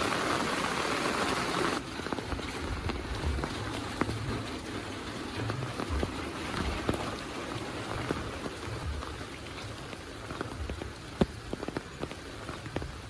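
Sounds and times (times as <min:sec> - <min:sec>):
heavy rain falling: 0:00.0 - 0:13.0
raindrops ticking close by: 0:00.0 - 0:13.0
dull low thuds: 0:02.1 - 0:04.6, 0:05.4 - 0:13.0.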